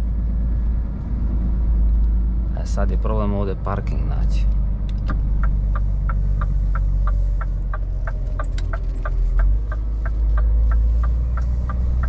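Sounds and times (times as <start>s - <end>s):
diesel engine drone: 0.0s - 12.0s
turn signal ticking: 4.8s - 12.0s.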